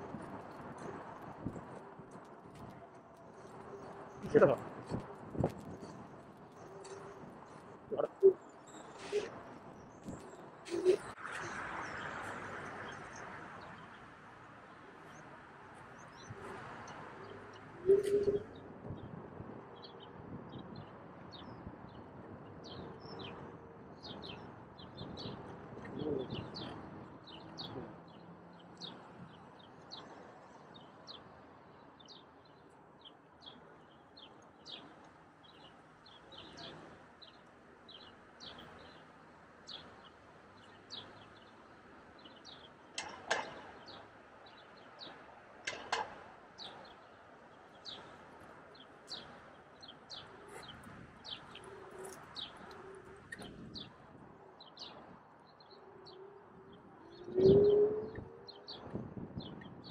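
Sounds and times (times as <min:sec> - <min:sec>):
small birds chirping: 0:19.8 - 0:59.9.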